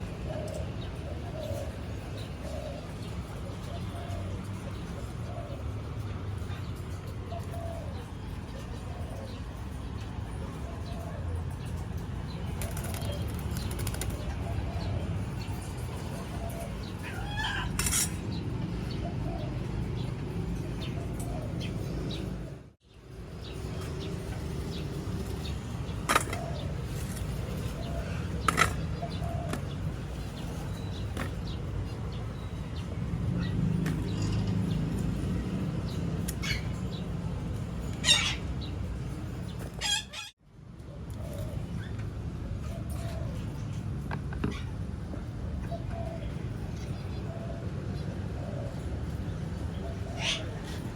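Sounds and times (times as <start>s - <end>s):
parrots squawking: 16.5s - 18.1s, 38.0s - 38.6s, 39.8s - 40.4s, 50.0s - 50.9s.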